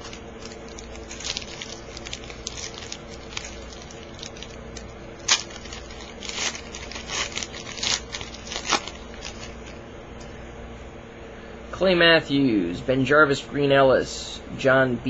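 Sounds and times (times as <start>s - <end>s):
wrapper crinkling and tearing: 0.0s - 9.8s
faint steady hum: 0.0s - 15.0s.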